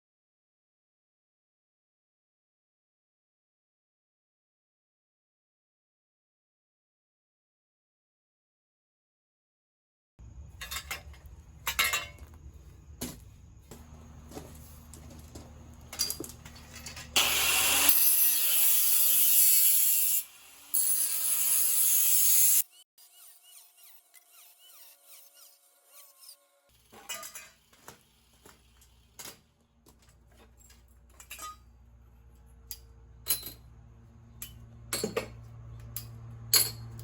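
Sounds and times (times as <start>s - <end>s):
power tool cutting metal: 16.8s - 29.4s.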